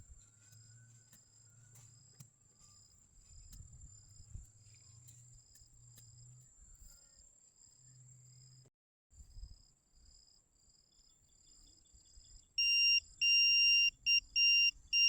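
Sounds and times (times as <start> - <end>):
cricket chirps: 9.3 - 15.0.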